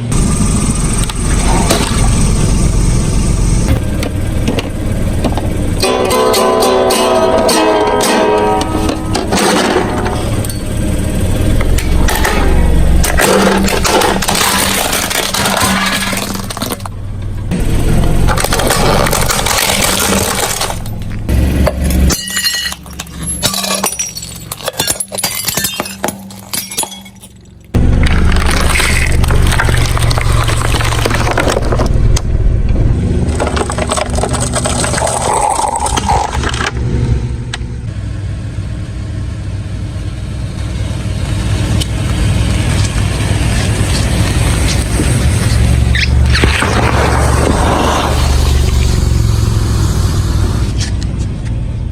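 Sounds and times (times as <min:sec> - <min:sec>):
car engine running: 0:00.0 - 0:51.9
tyres crushing objects: 0:11.6 - 0:32.3, 0:33.0 - 0:36.9, 0:42.8 - 0:49.4.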